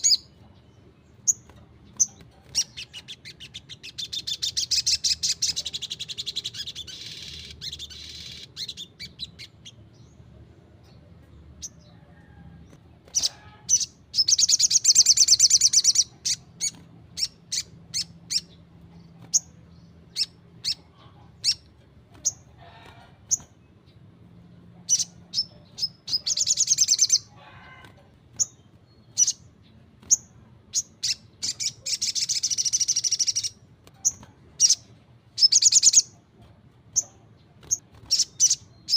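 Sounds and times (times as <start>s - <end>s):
sharp bird chirps: 28.4s - 36.2s.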